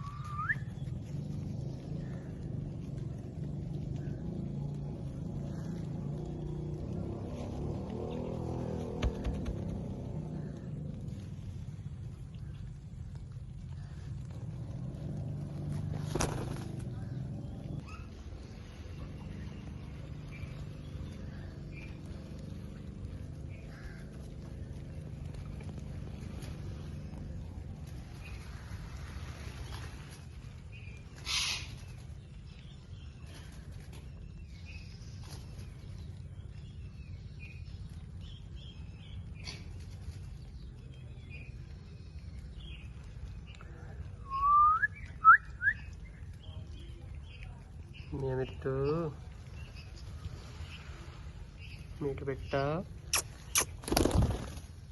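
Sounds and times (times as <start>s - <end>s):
parrot whistle rising in pitch: 0.0s - 0.7s, 44.3s - 45.8s
low rumble: 0.0s - 52.2s.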